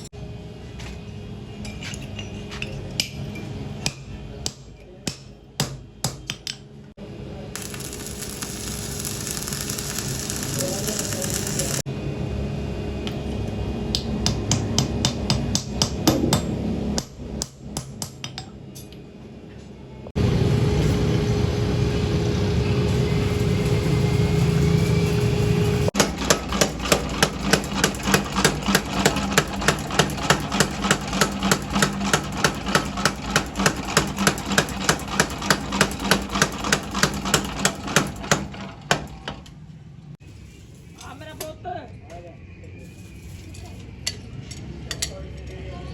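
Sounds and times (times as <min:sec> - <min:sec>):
hammer striking steel: 0:03.8 - 0:06.7, 0:13.9 - 0:18.9, 0:26.0 - 0:39.4
loud machine humming: 0:07.0 - 0:14.4, 0:20.2 - 0:39.3.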